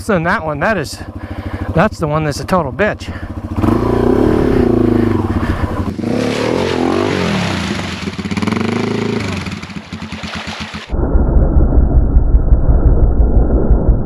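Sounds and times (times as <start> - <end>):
motorcycle engine revving: 1.0 - 10.9.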